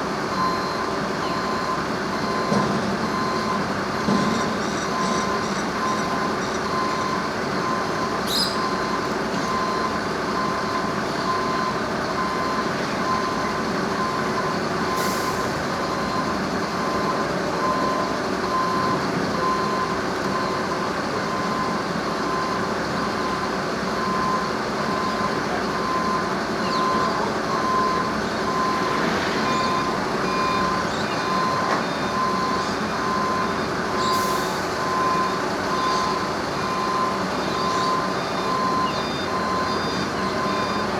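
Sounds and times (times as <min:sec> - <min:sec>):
reversing alarm beeping: 0:00.0 - 0:40.9
vehicle rumble: 0:09.1 - 0:34.0.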